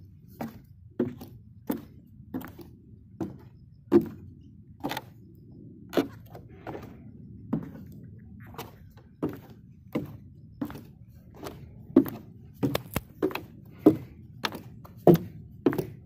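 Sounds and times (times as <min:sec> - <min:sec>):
high heel footsteps clacking: 0:08.5 - 0:16.0.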